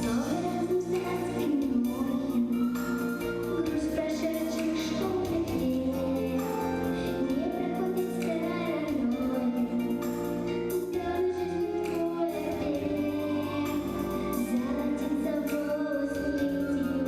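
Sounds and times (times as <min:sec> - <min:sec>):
children's choir singing: 0:00.0 - 0:02.8, 0:10.8 - 0:17.0
instrumental accompaniment: 0:00.0 - 0:17.0.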